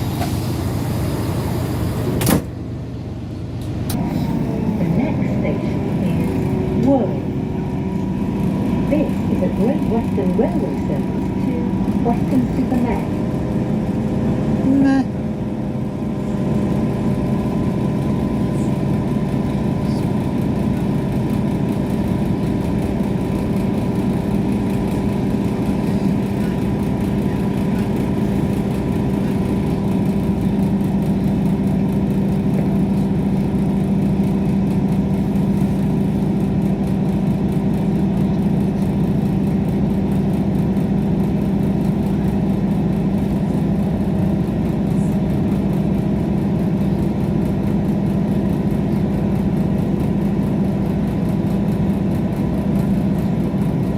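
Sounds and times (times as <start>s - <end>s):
diesel train engine hum: 0.0s - 53.9s.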